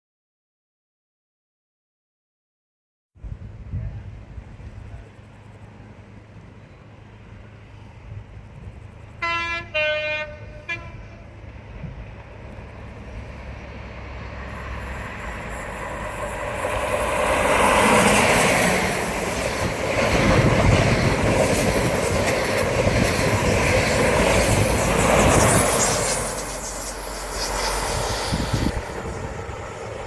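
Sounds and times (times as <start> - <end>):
train engine passing at speed: 3.2 - 30.0
wheels on rails: 10.9 - 30.0.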